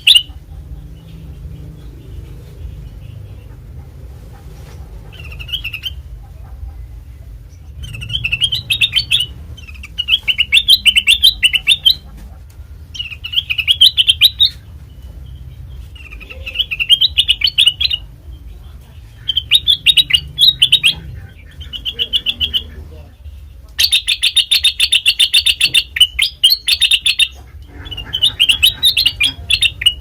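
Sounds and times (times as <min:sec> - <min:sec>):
bird warbling chirps: 0:00.0 - 0:00.4, 0:07.5 - 0:12.1, 0:12.9 - 0:14.7, 0:15.3 - 0:18.2, 0:19.1 - 0:23.0, 0:23.8 - 0:30.0
steady low hum: 0:00.0 - 0:30.0.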